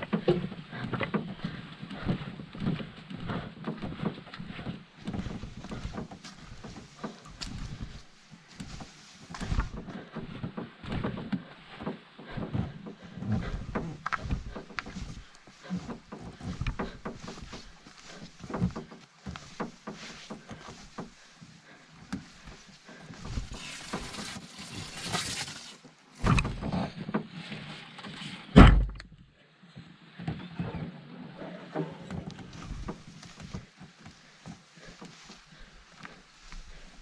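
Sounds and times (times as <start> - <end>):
heavy thunk: 28.6 - 29.1.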